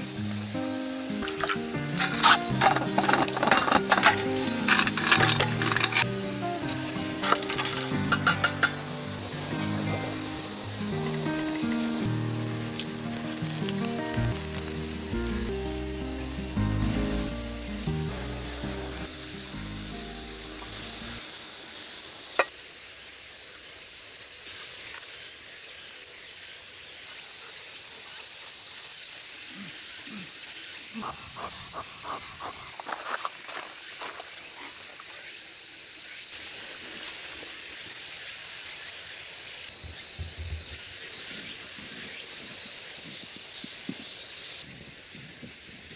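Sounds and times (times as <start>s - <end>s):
steady hiss: 0.0s - 45.9s
background music: 0.4s - 21.2s.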